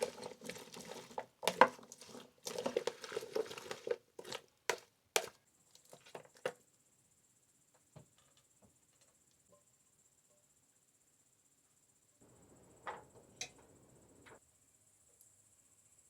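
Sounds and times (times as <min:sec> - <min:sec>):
crickets chirring: 0:12.2 - 0:14.4.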